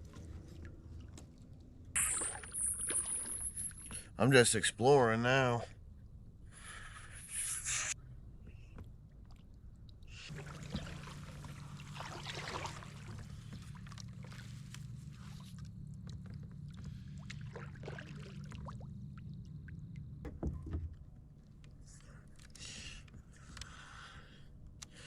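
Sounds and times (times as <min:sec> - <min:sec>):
water dripping: 0:00.1 - 0:04.0
steady low hum: 0:05.6 - 0:25.0
paddle splashing in water: 0:10.3 - 0:15.6, 0:16.8 - 0:18.9
paddle knocking against hull: 0:20.2 - 0:21.0.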